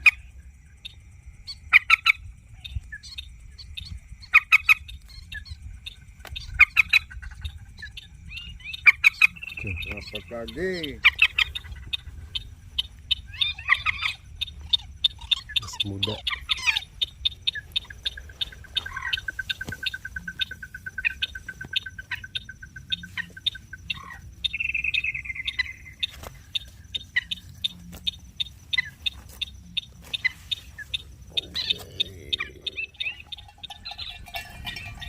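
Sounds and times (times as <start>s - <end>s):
long even bird trill: 29.7s - 35.0s.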